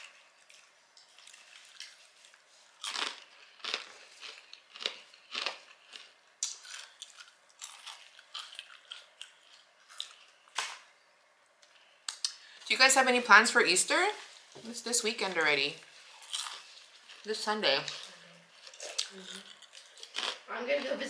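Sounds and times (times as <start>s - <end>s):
person chewing and crunching: 0.0s - 10.7s, 15.8s - 20.9s.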